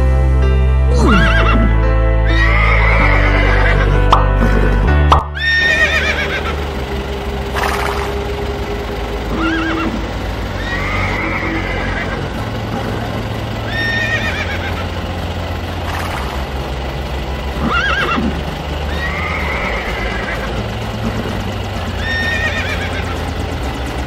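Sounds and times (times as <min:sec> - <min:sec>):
horse whinnying: 0:00.9 - 0:04.7, 0:05.4 - 0:06.5, 0:09.3 - 0:10.0, 0:10.6 - 0:12.2, 0:13.7 - 0:14.8, 0:17.6 - 0:20.5, 0:22.0 - 0:23.1
steady low hum: 0:03.8 - 0:24.0.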